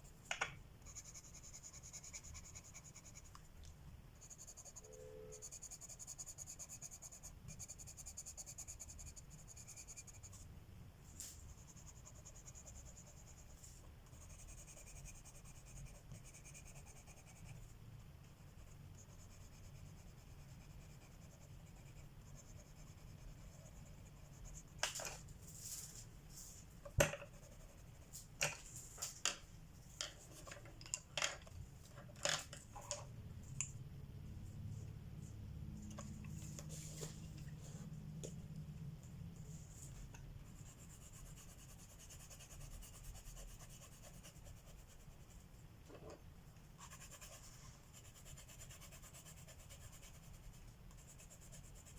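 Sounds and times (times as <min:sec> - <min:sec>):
coloured pencil scratching on paper: 0:00.8 - 0:03.3, 0:04.2 - 0:10.4, 0:11.5 - 0:24.8, 0:27.3 - 0:28.1, 0:39.8 - 0:45.5, 0:46.7 - 0:51.9.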